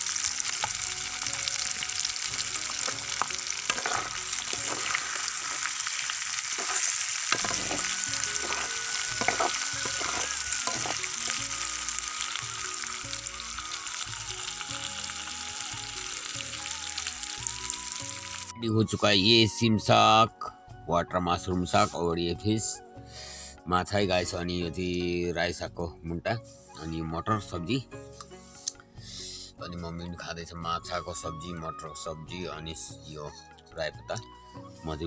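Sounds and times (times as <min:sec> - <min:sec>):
food sizzling in hot oil: 0:00.0 - 0:18.6
spoon scraping and knocking pan: 0:02.6 - 0:11.5.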